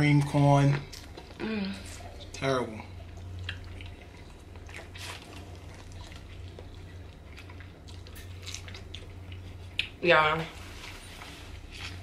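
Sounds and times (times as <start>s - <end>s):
steady low hum: 0.0s - 12.0s
biting and chewing corn: 3.4s - 9.8s.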